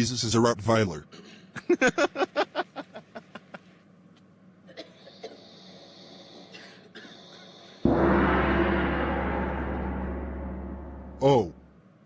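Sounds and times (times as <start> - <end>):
person laughing: 1.6 - 3.6.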